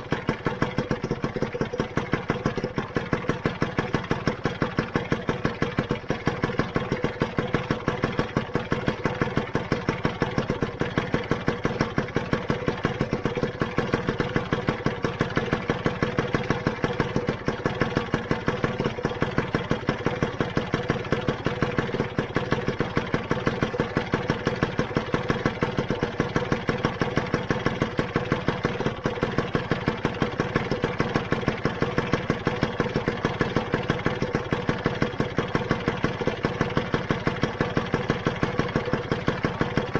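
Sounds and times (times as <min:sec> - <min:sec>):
scooter engine idling: 0:00.0 - 0:39.9.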